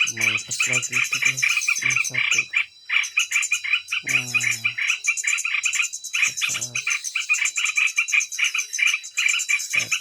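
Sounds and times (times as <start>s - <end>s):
man speaking: 0.0s - 2.6s, 4.0s - 4.8s, 6.4s - 6.9s
shrill rapid chirping calls: 0.0s - 10.0s.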